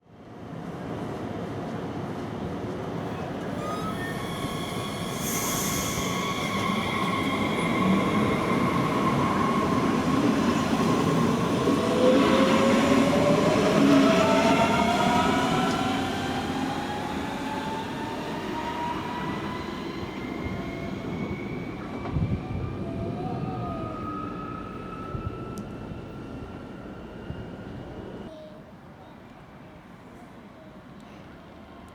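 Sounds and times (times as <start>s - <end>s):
electric train motors whining: 3.2s - 28.2s.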